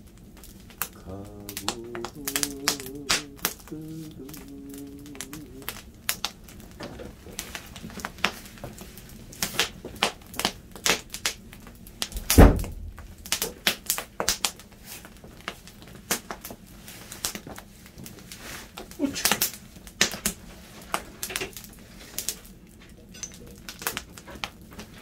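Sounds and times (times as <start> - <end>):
wood fire crackling and popping: 0.0 - 25.0
heavy thump: 12.2 - 13.2.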